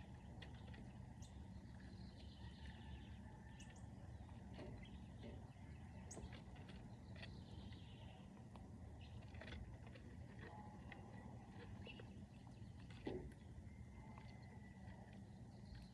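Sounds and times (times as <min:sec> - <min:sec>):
low background rumble: 0:00.0 - 0:15.9.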